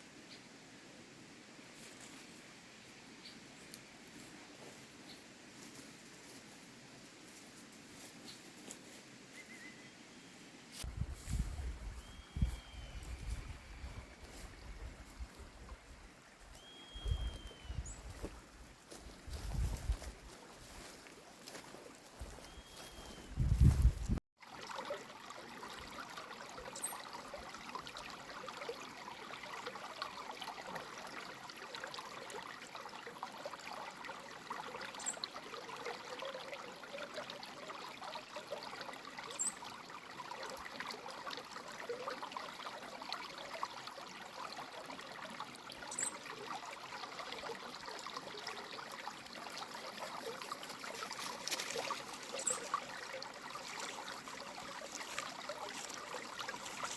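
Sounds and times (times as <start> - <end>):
creek water trickling: 1.4 - 56.9
faint high chirps: 11.8 - 14.5, 16.5 - 18.2.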